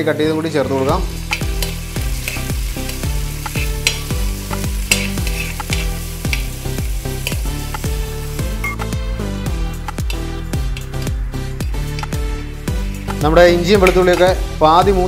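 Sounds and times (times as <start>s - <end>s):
ginger and garlic sizzling in oil: 0.0s - 15.0s
metal spoon scraping pan: 1.2s - 6.6s, 9.9s - 12.2s.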